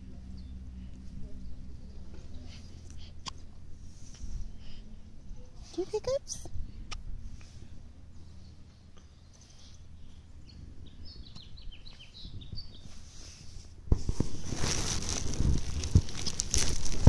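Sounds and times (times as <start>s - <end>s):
bird chirping: 8.1s - 13.0s
rustling and bumps on microphone: 13.9s - 17.0s.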